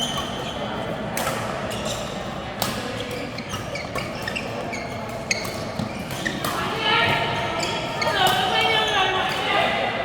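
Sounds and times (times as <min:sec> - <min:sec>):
background voices in a large hall: 0:00.0 - 0:10.0
short squeaks: 0:03.1 - 0:06.5.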